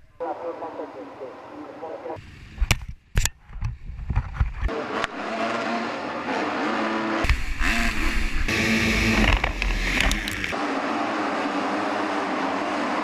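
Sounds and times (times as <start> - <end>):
motocross engines revving: 4.7 - 13.0.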